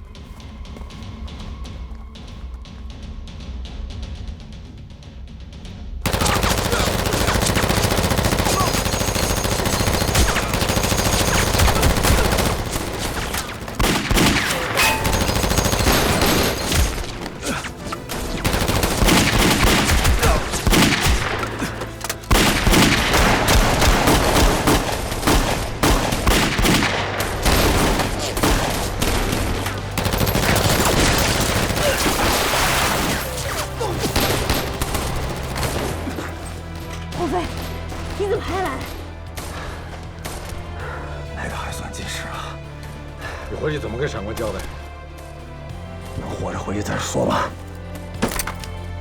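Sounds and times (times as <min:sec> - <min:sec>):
rapid gunfire: 0:06.0 - 0:36.3.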